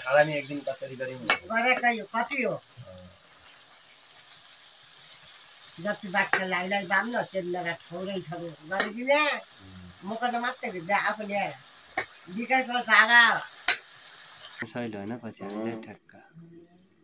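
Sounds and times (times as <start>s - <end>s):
chicken sizzling in hot oil: 0.0s - 14.6s
person speaking: 14.6s - 16.6s.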